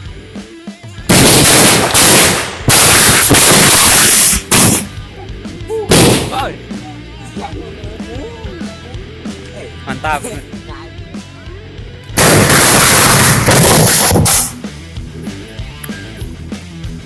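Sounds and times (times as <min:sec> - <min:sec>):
bamboo cannon booms: 0:05.9 - 0:06.4.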